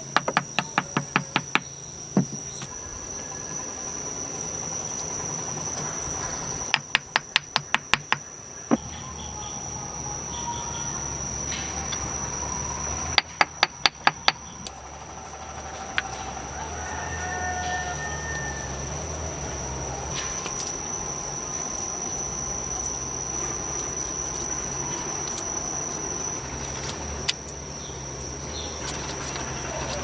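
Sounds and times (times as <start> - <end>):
high insect trill: 0.0 - 30.0
sharp knocks: 0.1 - 2.7, 6.7 - 8.8, 13.2 - 14.4.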